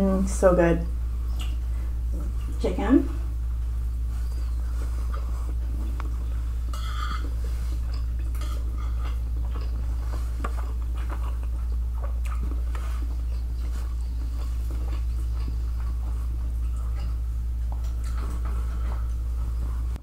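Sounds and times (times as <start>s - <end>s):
low hum: 0.0s - 20.0s
soft mouth clicks: 1.3s - 1.6s
close chewing of food: 3.3s - 20.0s
fork scraping on plate: 6.7s - 9.7s.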